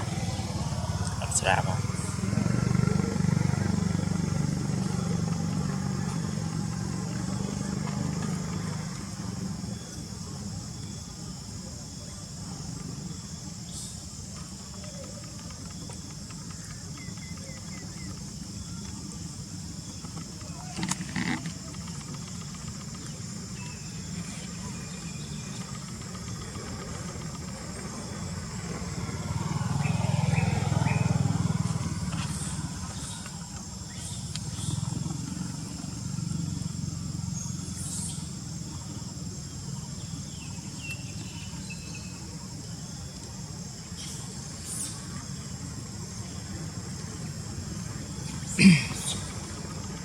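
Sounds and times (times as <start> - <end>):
motor vehicle passing by: 0.0 - 10.0, 21.2 - 43.0
constant high hiss: 0.0 - 50.0.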